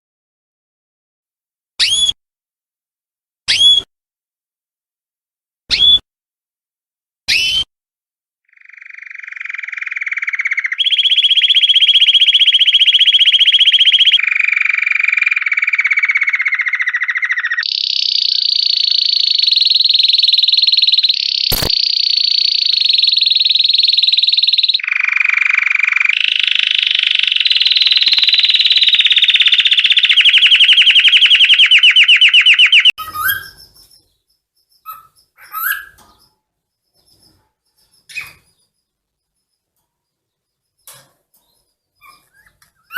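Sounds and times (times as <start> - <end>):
canary singing rapid trills: 8.5 - 39.7, 40.4 - 42.9
short bird chirps: 15.6 - 39.7, 41.5 - 42.9
sharp click: 21.5 - 21.9.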